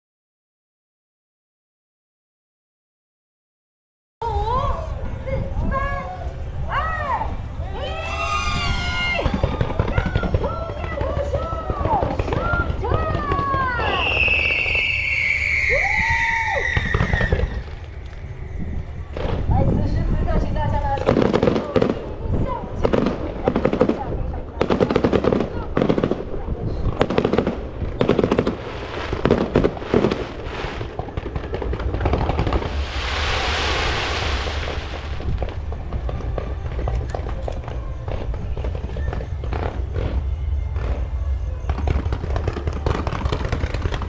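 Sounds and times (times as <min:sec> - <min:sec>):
whistling firework shriek: 0:07.6 - 0:20.1, 0:28.6 - 0:44.0
fireworks crackling pops: 0:07.8 - 0:44.0
low rumble: 0:26.2 - 0:44.0.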